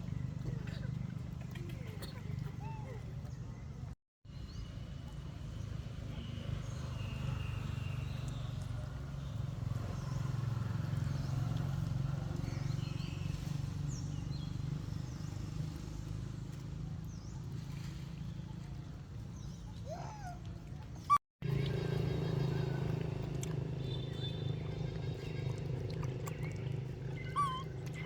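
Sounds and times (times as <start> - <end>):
rising animal squeal: 27.1 - 28.0.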